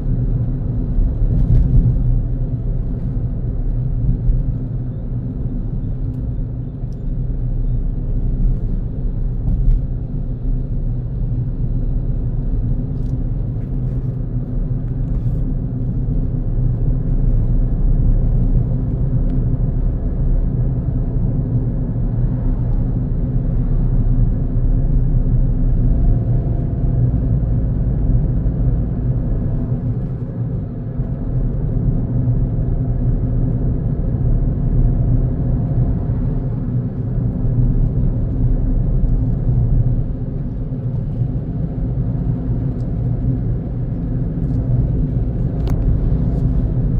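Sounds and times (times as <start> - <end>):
car engine and tyres rumbling: 0.0 - 46.9.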